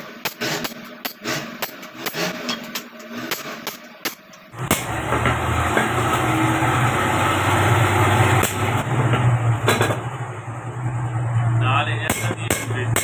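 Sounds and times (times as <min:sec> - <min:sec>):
large engine rumbling: 0:04.5 - 0:13.0.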